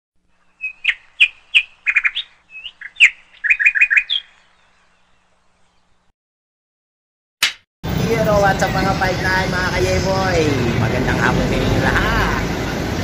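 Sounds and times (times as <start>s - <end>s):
bird chirping: 0.3s - 6.1s.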